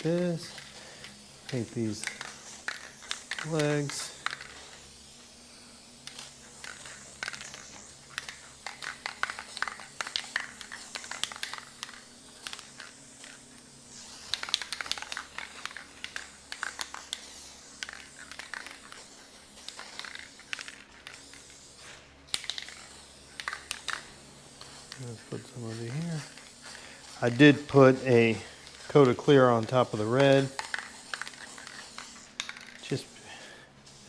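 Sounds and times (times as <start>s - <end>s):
brush scratching and clicking on wood: 0.0s - 4.6s, 14.2s - 33.5s.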